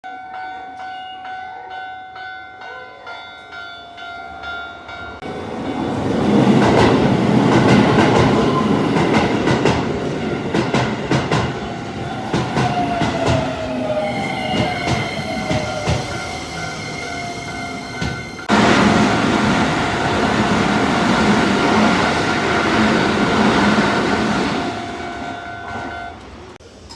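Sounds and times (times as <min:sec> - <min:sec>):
train whine: 0:05.2 - 0:26.9
level crossing alarm bell: 0:10.0 - 0:26.2.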